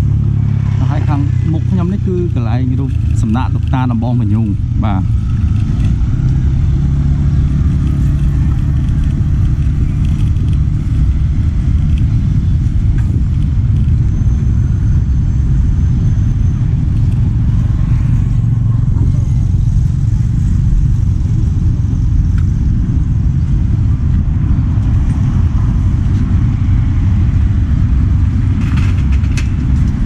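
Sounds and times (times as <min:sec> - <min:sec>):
vehicle and road noise: 0:00.0 - 0:30.0
wind buffeting microphone: 0:00.0 - 0:30.0.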